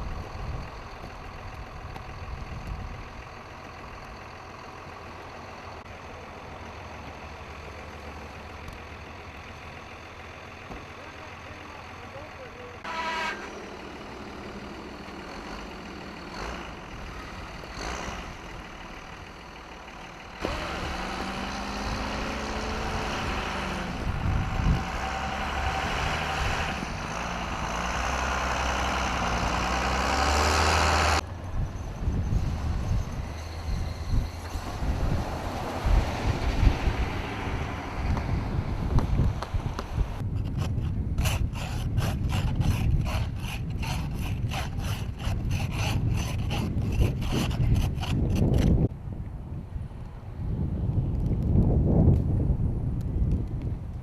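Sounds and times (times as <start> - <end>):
diesel truck engines running: 0.0 - 48.9
wind noise: 20.4 - 27.7, 31.2 - 54.0.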